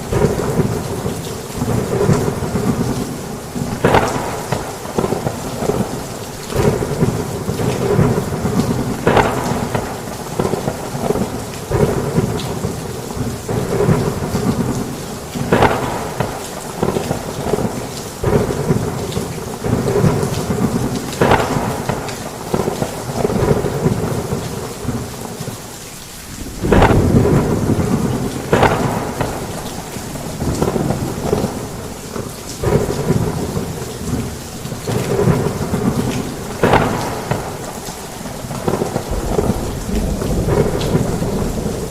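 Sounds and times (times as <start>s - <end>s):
thunder rumbling and cracking: 0.0s - 25.6s, 26.3s - 41.9s
heavy rain pouring: 0.0s - 41.9s.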